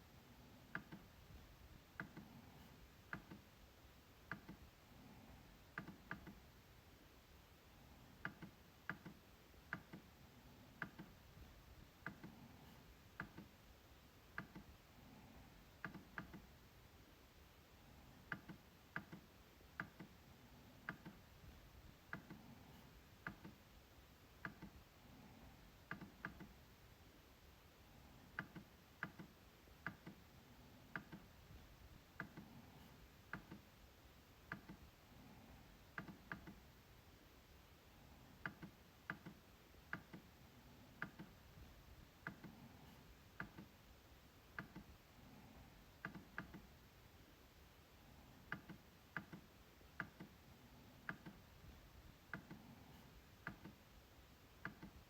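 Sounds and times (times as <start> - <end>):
trackpad clicks: 0.7 - 1.1, 4.3 - 4.7, 5.7 - 6.4, 8.2 - 10.1, 10.8 - 11.2, 14.3 - 14.7, 15.8 - 16.5, 28.4 - 30.2, 34.5 - 34.9, 36.0 - 36.6, 38.4 - 40.3, 41.0 - 41.4, 44.5 - 44.9, 46.0 - 46.7, 48.5 - 50.4, 51.0 - 51.4, 54.6 - 55.0.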